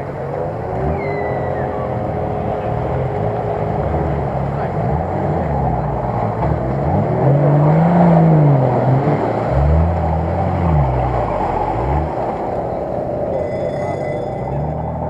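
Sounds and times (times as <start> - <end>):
engine revving: 0.0 - 15.0
water and mud splashing: 7.1 - 12.8.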